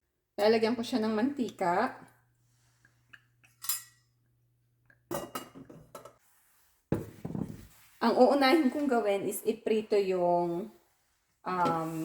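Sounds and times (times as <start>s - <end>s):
cookware and utensils clinking: 3.1s - 4.2s, 5.1s - 6.2s.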